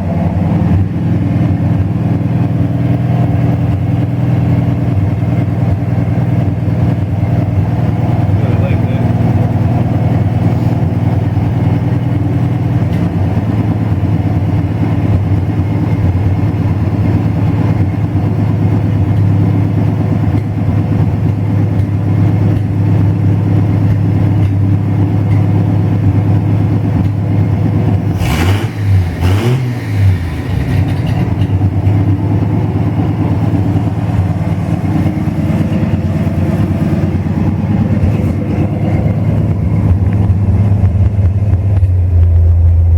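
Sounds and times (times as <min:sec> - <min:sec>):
car engine idling: 0:00.0 - 0:42.9
sharp engine knocks: 0:20.3 - 0:28.1, 0:29.8 - 0:42.5.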